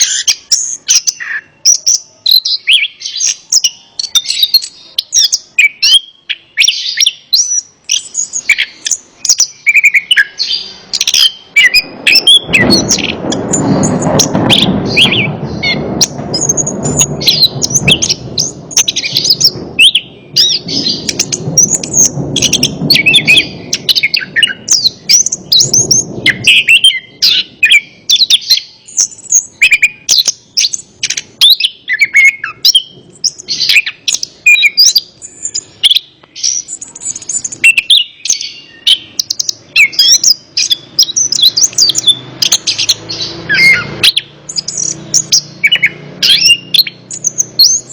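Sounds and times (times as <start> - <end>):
thrush singing: 0.0 - 47.9
low rushing noise: 10.6 - 28.1.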